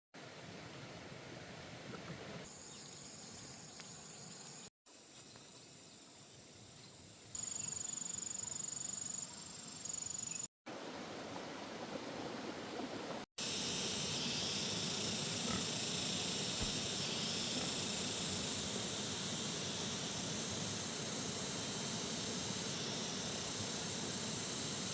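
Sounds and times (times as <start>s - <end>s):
steady outdoor hiss: 0.2s - 24.9s
thin high insect drone: 2.5s - 10.5s, 13.4s - 24.9s.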